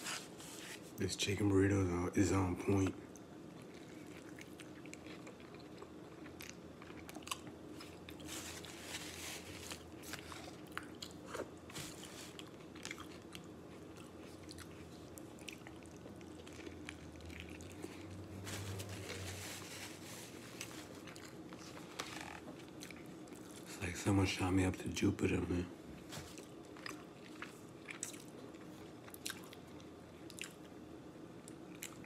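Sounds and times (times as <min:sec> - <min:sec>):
faint low hum: 0:00.0 - 0:32.0
person chewing food: 0:03.1 - 0:23.7, 0:26.2 - 0:30.7, 0:31.4 - 0:32.0.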